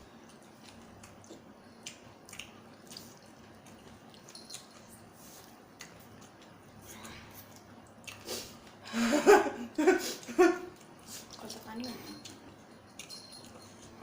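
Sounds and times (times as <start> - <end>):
wet chewing mouth sounds: 0.1 - 8.8.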